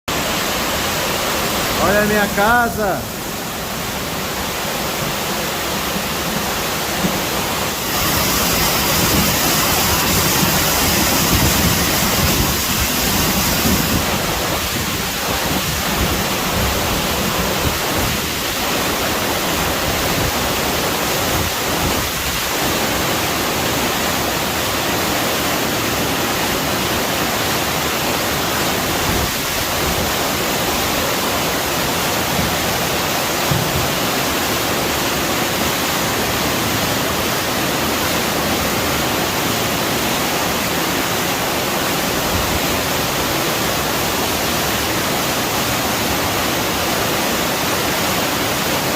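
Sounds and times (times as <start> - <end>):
heavy rain pouring: 0.1 - 48.9
bright high hiss: 7.1 - 14.9.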